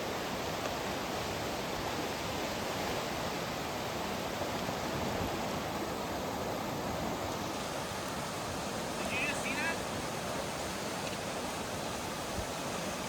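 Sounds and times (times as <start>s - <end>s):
rush of turbulent creek water: 0.0s - 13.0s.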